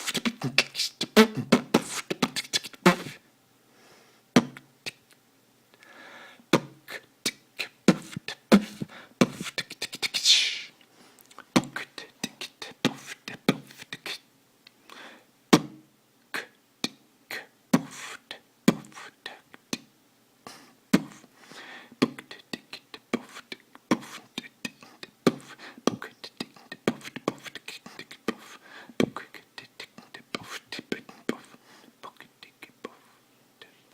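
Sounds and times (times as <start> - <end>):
beatboxing drum sounds: 0.0 - 3.2, 4.4 - 5.0, 6.5 - 10.7, 11.6 - 14.2, 16.4 - 19.9, 20.5 - 21.2, 22.0 - 31.6
hissing cymbal-like beatbox sound: 0.0 - 3.2, 6.5 - 10.8, 11.6 - 14.3, 16.4 - 19.9, 22.0 - 31.6.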